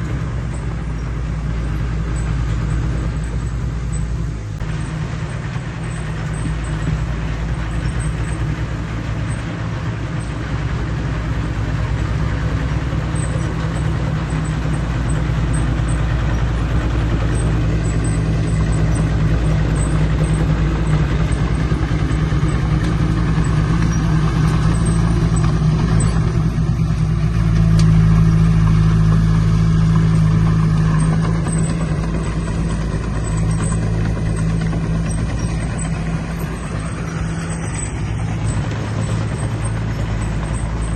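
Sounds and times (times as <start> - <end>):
heavy machine diesel engine running: 0.0 - 40.9.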